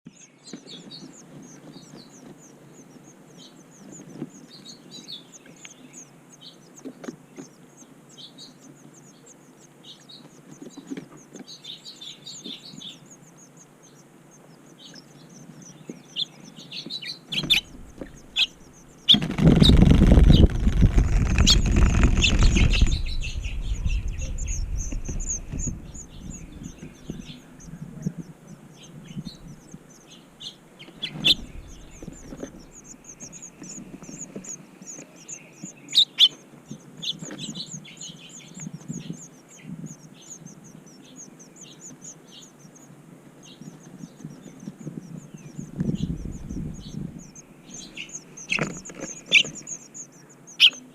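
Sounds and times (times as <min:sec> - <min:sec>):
small birds chirping: 0:00.0 - 0:50.9
loud rustling rumble: 0:17.4 - 0:29.9, 0:30.9 - 0:34.5, 0:44.1 - 0:49.5.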